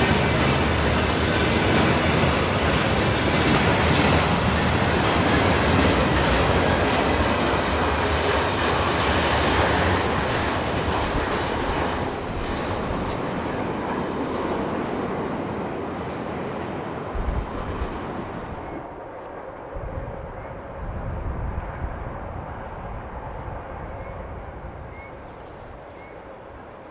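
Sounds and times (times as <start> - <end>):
wheels clattering over rail joints: 0.0 - 18.9
freight train wagons rolling: 0.0 - 19.6.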